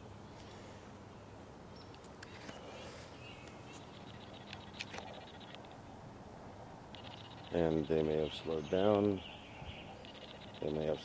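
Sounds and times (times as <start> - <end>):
low steady hum: 0.0 - 11.0
faint bird chirps: 1.2 - 5.8, 6.9 - 11.0.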